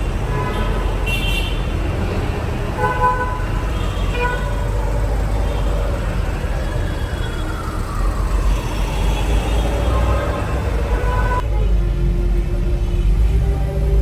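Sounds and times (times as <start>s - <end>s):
car horns honking: 0.0s - 6.4s, 8.6s - 11.7s
rumble of traffic engines: 0.0s - 14.0s.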